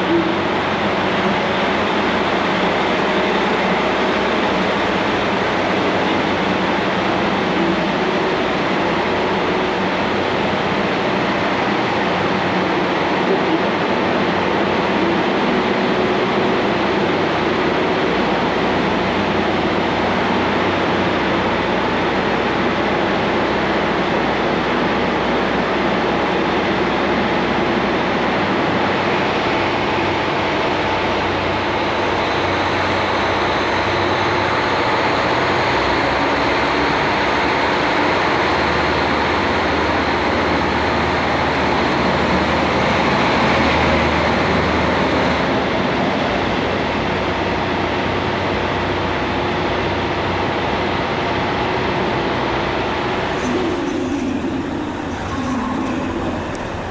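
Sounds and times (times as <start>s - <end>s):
diesel railcar engine: 0.0s - 56.9s
faint tonal hum: 52.4s - 56.9s.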